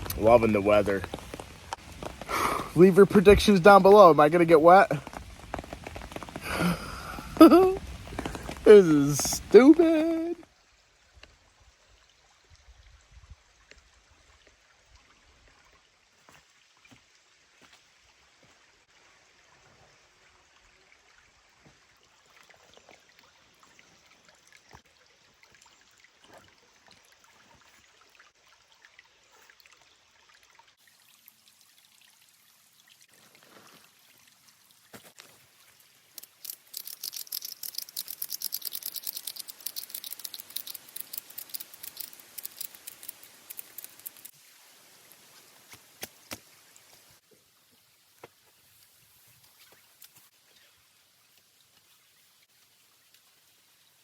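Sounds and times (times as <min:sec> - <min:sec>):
rain pattering: 0:00.0 - 0:10.4, 0:36.1 - 0:45.2
trickle of water: 0:00.0 - 0:54.0.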